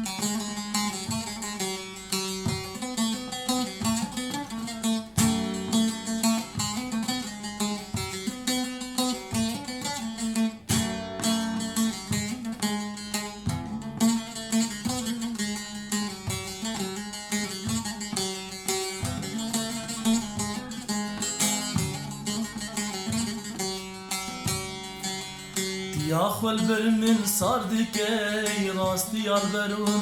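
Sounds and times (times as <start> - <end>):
plucked string melody: 0.0 - 30.0.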